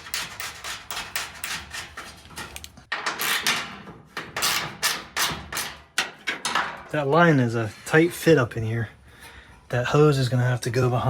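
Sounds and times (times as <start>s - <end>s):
metal parts scraping: 0.0s - 3.8s.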